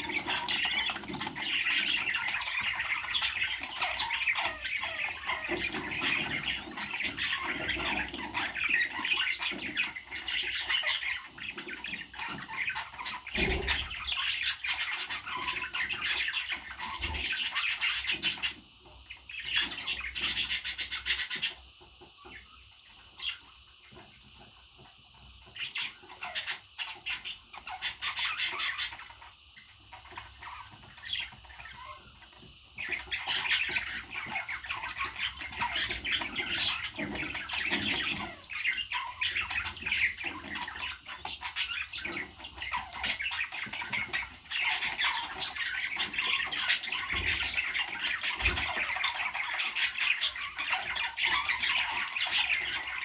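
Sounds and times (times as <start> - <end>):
parrot squawking and chattering: 19.5 - 24.5, 25.1 - 46.9.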